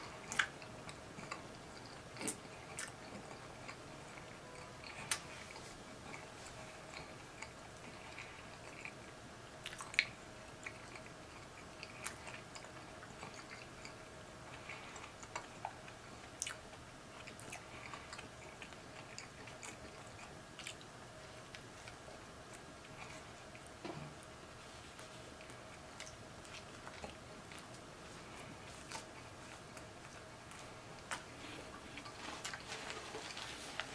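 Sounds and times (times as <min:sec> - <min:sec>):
faint steady hum: 0:00.0 - 0:33.9
person chewing bread: 0:00.0 - 0:33.9
wet mouth clicks and smacks: 0:00.3 - 0:00.6, 0:09.6 - 0:10.1.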